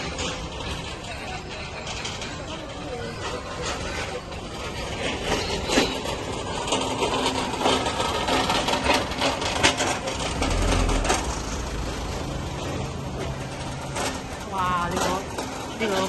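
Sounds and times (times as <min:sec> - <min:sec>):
clattering and knocking: 0:00.0 - 0:16.0
low rumble: 0:09.4 - 0:15.6.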